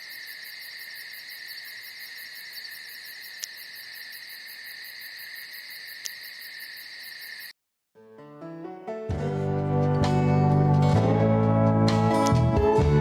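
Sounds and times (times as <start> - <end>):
insects trilling: 0.0 - 7.5
pulsing insect chirp: 0.0 - 7.5.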